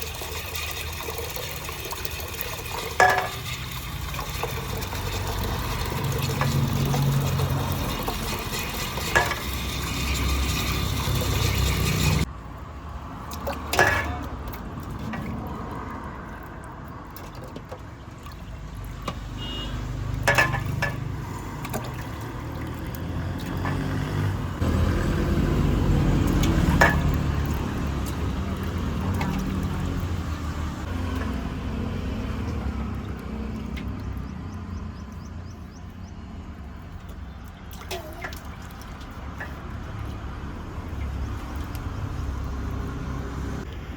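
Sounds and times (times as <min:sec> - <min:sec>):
metal clanks: 0:02.8 - 0:03.8, 0:07.9 - 0:12.2.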